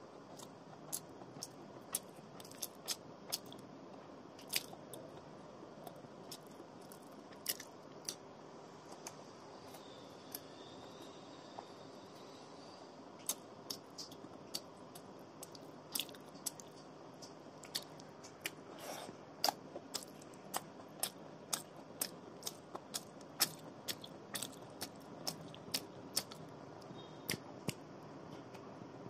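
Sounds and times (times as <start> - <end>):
person chewing with mouth smacking: 0.3 - 3.6, 4.4 - 5.2, 5.8 - 8.2, 13.2 - 26.4.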